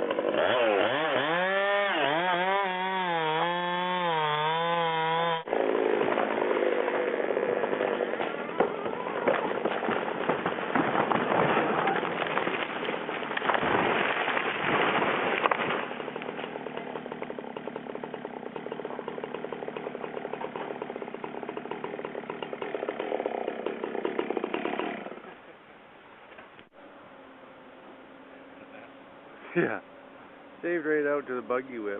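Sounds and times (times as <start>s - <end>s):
chainsaw running: 0.0s - 9.9s, 13.0s - 25.3s
heavy tree impact: 5.4s - 25.0s
branches crashing: 5.5s - 24.9s
wood cracking: 5.5s - 25.3s.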